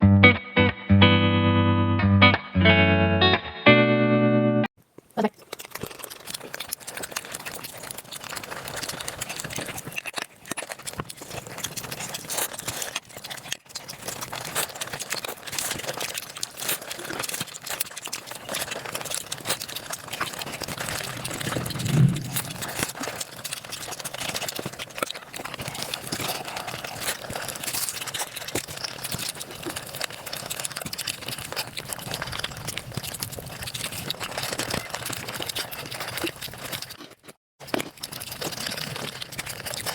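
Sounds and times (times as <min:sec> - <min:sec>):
rapid chewing and crunching: 0:04.8 - 0:39.9
brief loud low sound: 0:21.4 - 0:23.0.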